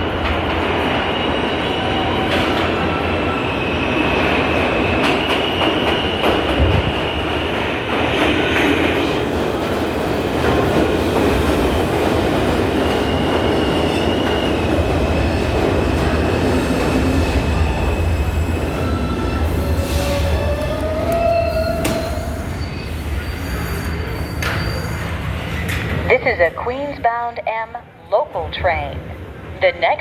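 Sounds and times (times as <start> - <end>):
subway train rumbling: 0.0 - 30.0
wheel squeal: 21.2 - 25.3.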